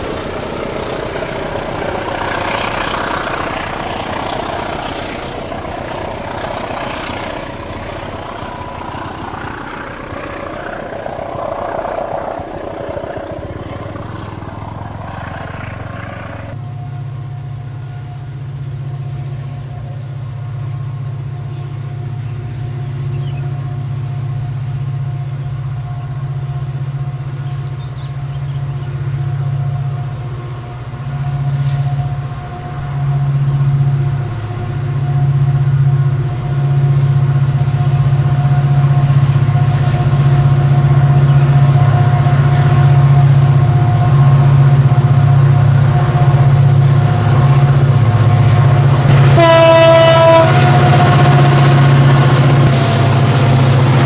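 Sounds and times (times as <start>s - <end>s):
diesel locomotive engine drone: 0.0s - 54.0s.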